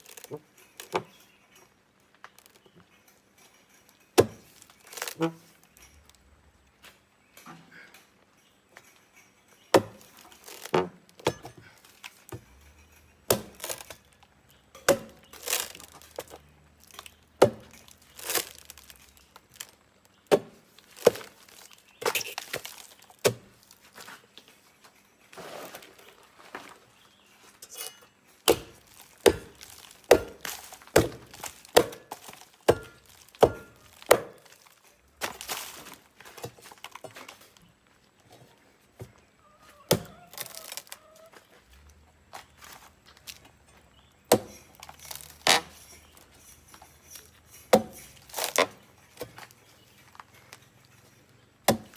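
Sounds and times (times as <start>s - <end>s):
sharp chopping strikes: 14.9s - 15.2s, 28.5s - 32.0s, 32.7s - 34.4s, 44.3s - 44.6s, 51.7s - 51.9s.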